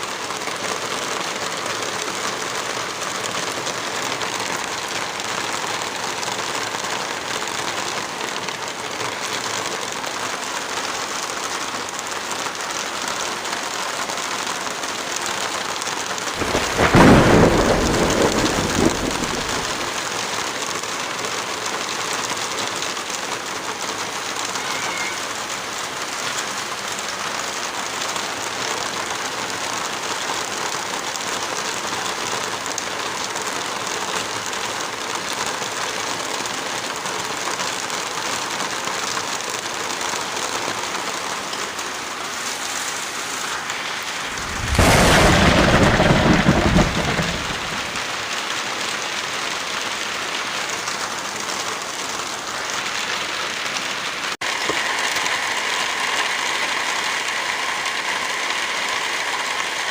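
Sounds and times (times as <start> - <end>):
heavy rain: 0.0 - 59.9
loud deep burst: 44.2 - 48.1.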